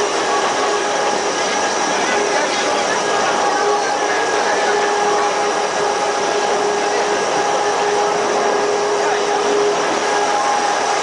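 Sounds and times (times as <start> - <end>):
electric motor whine: 0.0 - 11.0
rushing noise of moving train: 0.0 - 11.0.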